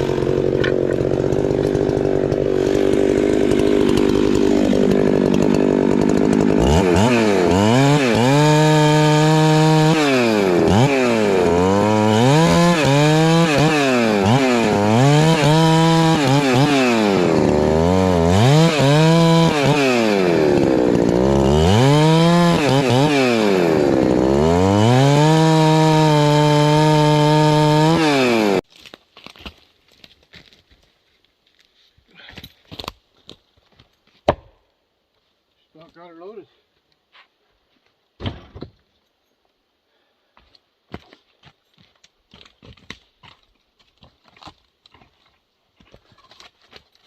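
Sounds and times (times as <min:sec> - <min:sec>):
chainsaw revving: 0:00.0 - 0:28.6.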